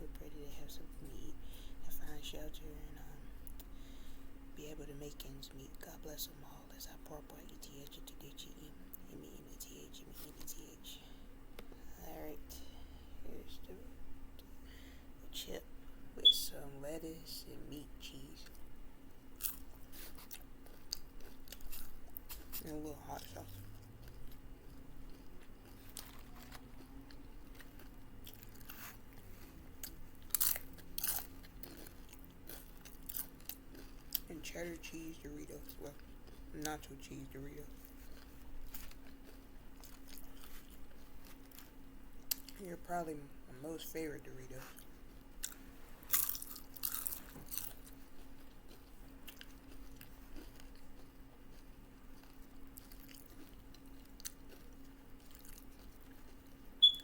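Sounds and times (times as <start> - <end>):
crunching tortilla chip: 19.4 - 42.7, 44.5 - 56.6.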